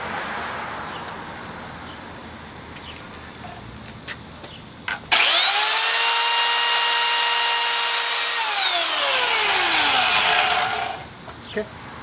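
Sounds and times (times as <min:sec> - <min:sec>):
chainsaw revving and winding down: 0:05.1 - 0:11.1.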